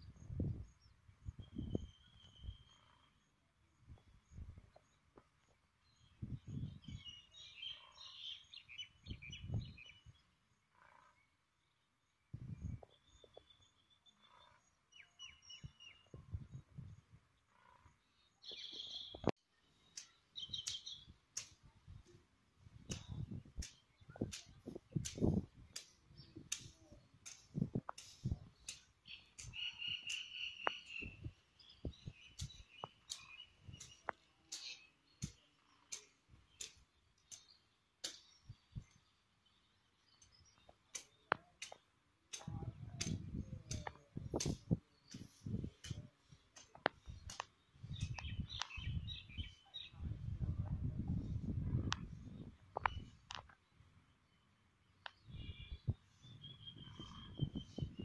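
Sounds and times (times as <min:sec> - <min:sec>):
small birds chirping: 0:00.0 - 0:58.0
sharp clicks: 0:19.9 - 0:21.7, 0:22.8 - 0:31.2, 0:32.2 - 0:38.3, 0:40.2 - 0:49.0
bird trilling call: 0:29.0 - 0:31.3
muffled rumbles on microphone: 0:49.9 - 0:53.2.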